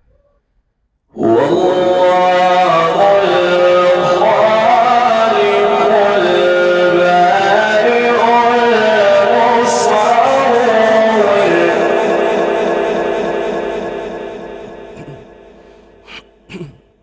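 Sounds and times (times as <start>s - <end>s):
man chanting melodically: 1.1s - 17.0s.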